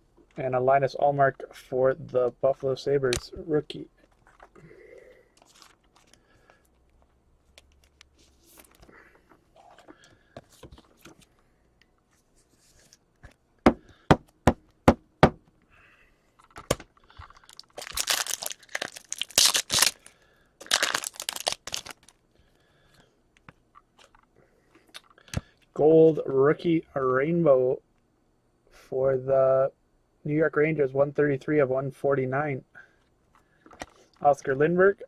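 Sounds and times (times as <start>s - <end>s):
wrapper tearing and crinkling: 5.4s - 6.2s, 17.3s - 22.2s.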